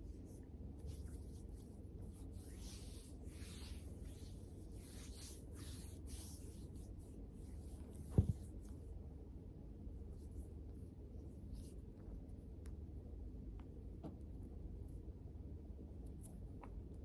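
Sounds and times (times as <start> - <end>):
soft knock: 8.0 - 8.5.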